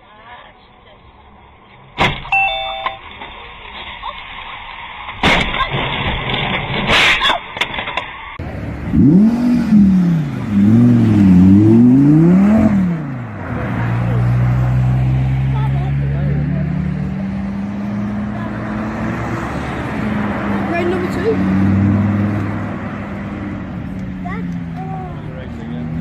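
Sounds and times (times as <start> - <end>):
car engine revving: 8.4 - 26.0.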